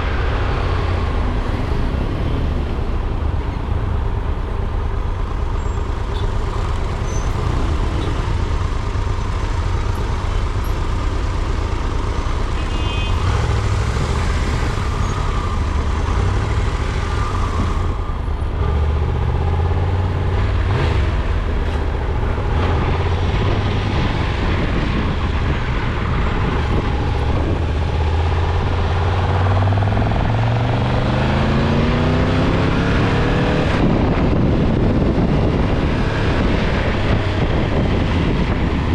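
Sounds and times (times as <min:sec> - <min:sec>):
vehicle engine running: 0:00.0 - 0:30.4
road noise: 0:00.0 - 0:38.9.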